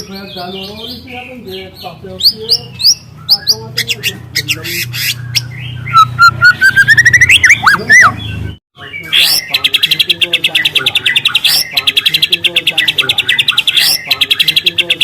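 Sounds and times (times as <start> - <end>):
bird singing chirps and whistles: 0.0 - 15.0
fast bird trill: 0.0 - 15.0.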